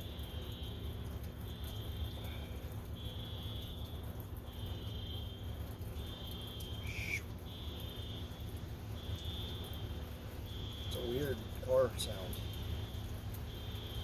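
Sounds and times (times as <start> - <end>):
car high chirping tone: 6.2 - 7.7.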